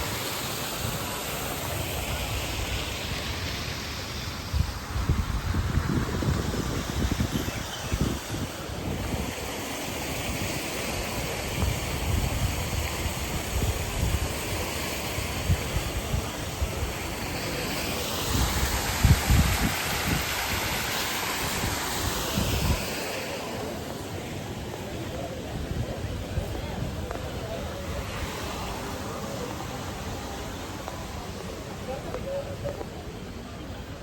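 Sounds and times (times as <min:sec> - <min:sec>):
wind buffeting microphone: 0:04.4 - 0:09.4, 0:18.3 - 0:20.9.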